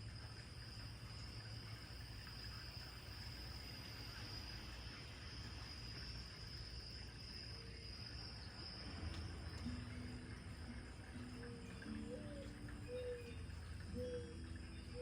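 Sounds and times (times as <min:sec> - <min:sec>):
high insect trill: 0:00.0 - 0:15.0
dove cooing: 0:11.1 - 0:15.0.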